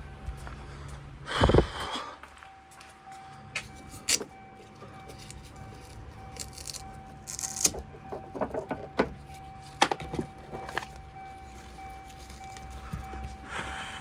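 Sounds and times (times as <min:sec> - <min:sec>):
car rear door clunking and rattling: 0:07.7 - 0:11.0.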